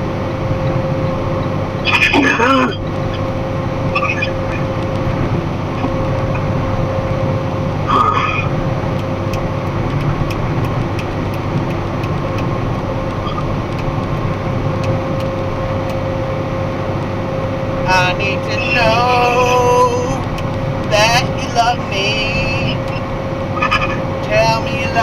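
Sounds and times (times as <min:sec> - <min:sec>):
steady hum: 0:00.0 - 0:25.0
truck engine and road noise: 0:00.0 - 0:25.0
faint regular ticking: 0:08.7 - 0:16.2.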